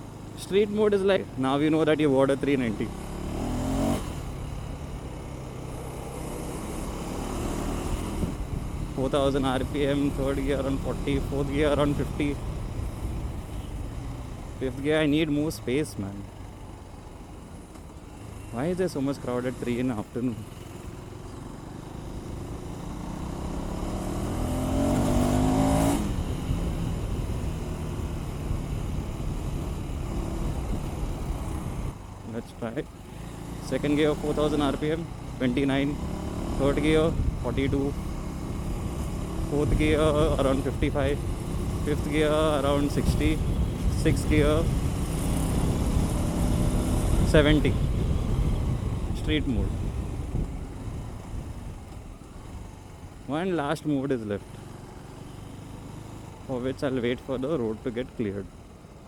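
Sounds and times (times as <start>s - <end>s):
motorcycle engine running: 0.0s - 59.0s
wind noise on microphone: 7.8s - 9.0s, 28.5s - 32.0s, 37.0s - 37.6s, 42.7s - 51.9s.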